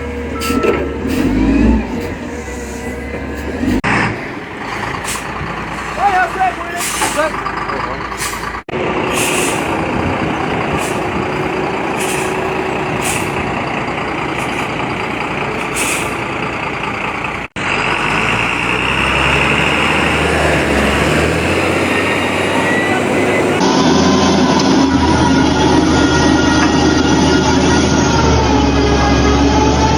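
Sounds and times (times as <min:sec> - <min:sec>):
diesel truck engine straining: 0:00.0 - 0:29.9
truck engine running low: 0:00.0 - 0:29.9
short air hisses: 0:04.6 - 0:06.1, 0:06.8 - 0:07.4, 0:08.2 - 0:13.4, 0:15.6 - 0:16.2.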